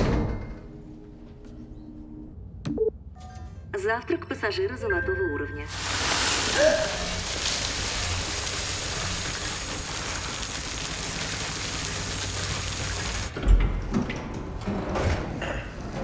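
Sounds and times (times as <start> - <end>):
steady rushing hiss: 5.7 - 13.3.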